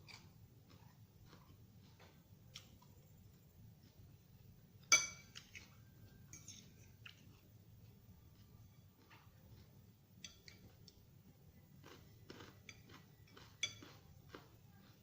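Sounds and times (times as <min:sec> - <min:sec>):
cutlery clinking on a dish: 0:04.8 - 0:07.2, 0:10.2 - 0:10.6, 0:12.6 - 0:14.0.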